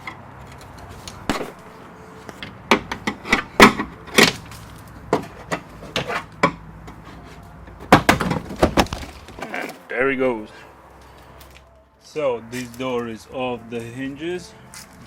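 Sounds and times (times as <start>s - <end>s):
metallic knocks and clunks: 2.4s - 7.0s, 7.7s - 9.6s.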